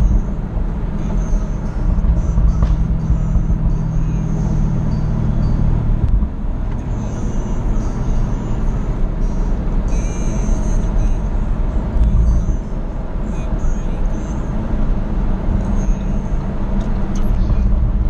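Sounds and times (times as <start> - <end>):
car engine drone: 0.0 - 18.0
tyre and road noise: 0.0 - 18.0.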